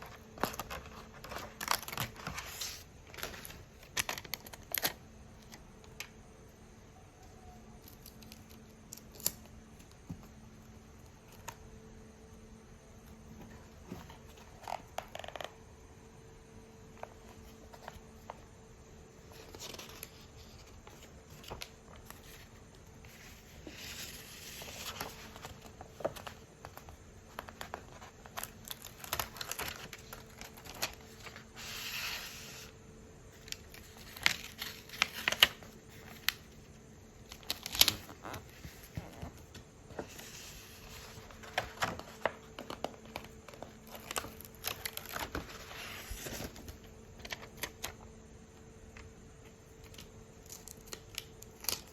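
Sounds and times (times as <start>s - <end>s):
packaging crinkling and tearing: 0.0s - 5.6s, 23.8s - 32.7s, 33.4s - 36.6s, 37.2s - 48.0s, 49.8s - 51.9s
faint electrical hum: 0.0s - 51.9s.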